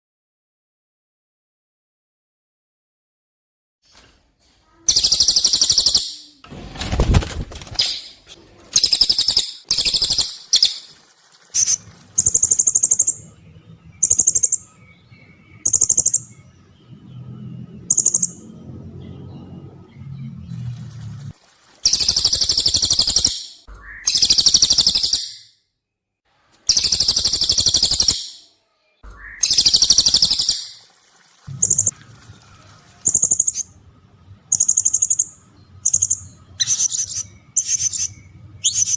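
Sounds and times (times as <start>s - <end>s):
high piercing bird trills: 4.8s - 6.4s, 8.8s - 10.9s, 11.5s - 18.6s, 21.8s - 25.6s, 26.6s - 30.9s, 33.0s - 33.8s, 34.4s - 38.9s
shrill bird calls: 4.8s - 6.4s, 8.8s - 13.2s, 13.9s - 16.6s, 21.8s - 25.6s, 26.6s - 30.9s, 34.5s - 38.9s.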